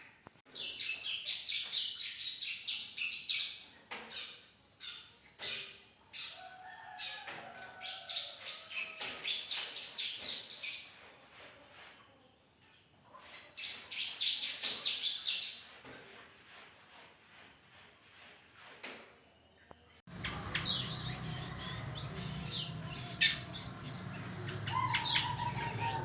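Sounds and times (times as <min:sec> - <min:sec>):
bird singing rapid high chirps: 0:20.1 - 0:26.0.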